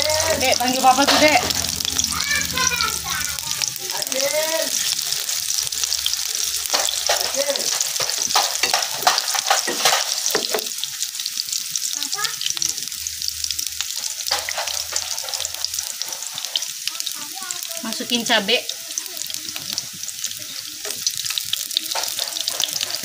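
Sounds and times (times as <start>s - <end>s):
shallots sizzling in hot oil: 0.0s - 23.0s
wooden spatula scraping a pan: 6.7s - 10.7s, 21.8s - 23.0s.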